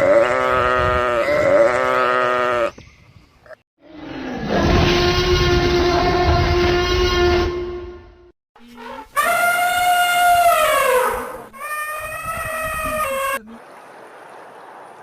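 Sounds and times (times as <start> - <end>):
livestock bleating: 0.0 - 2.7
long steady animal call: 8.6 - 13.4.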